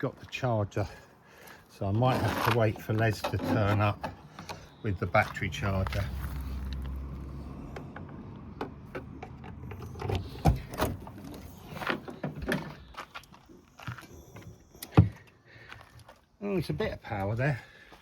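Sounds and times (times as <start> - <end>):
clicks and knocks on a car: 7.7 - 11.2.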